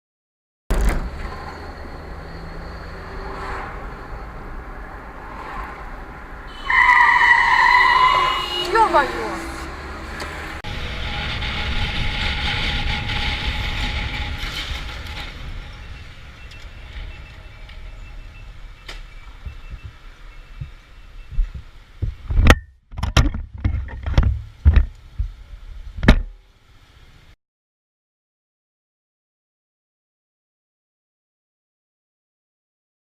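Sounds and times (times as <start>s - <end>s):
loud bangs and thumps: 0.7s - 1.6s
car engine and road noise: 0.7s - 27.4s.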